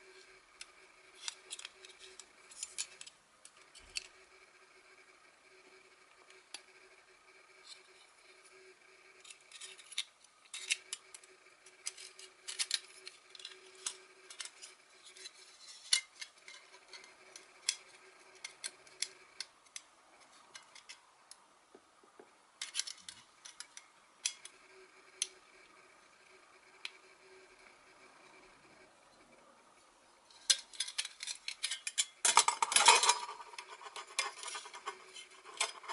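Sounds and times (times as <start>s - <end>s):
faint steady hum: 0.0s - 35.9s
small metal parts clinking: 30.4s - 35.9s.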